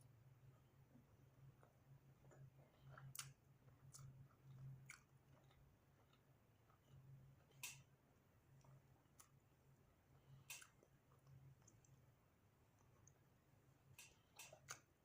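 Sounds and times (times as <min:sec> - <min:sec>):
steady low hum: 0:00.0 - 0:15.0
wet chewing with mouth smacks: 0:01.5 - 0:07.7.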